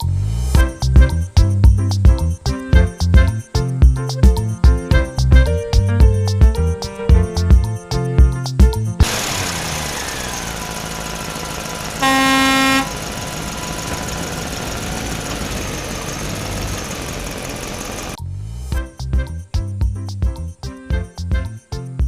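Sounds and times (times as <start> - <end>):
motor vehicle running: 9.0 - 18.9
car horn honk: 11.9 - 13.1.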